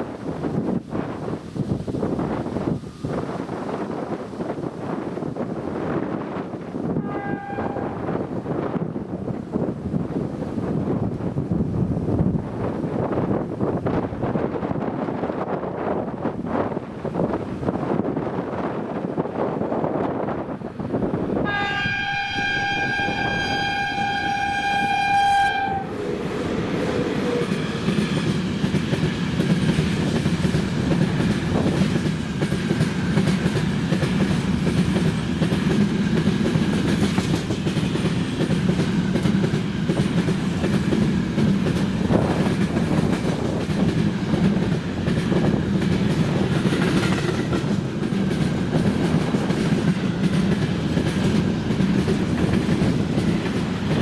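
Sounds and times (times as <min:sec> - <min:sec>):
freight train rumbling past: 0:00.0 - 0:54.0
locomotive horn blast: 0:07.0 - 0:08.2, 0:21.4 - 0:26.0
wheels clacking over rail joints: 0:26.0 - 0:54.0.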